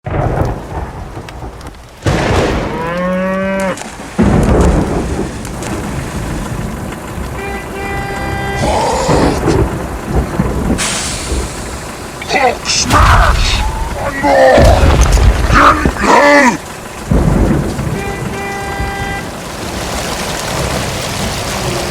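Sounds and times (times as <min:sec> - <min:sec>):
steady rain: 0:00.0 - 0:21.9
thunder rumbling: 0:00.0 - 0:21.9
cow mooing: 0:02.7 - 0:03.8, 0:07.4 - 0:09.7.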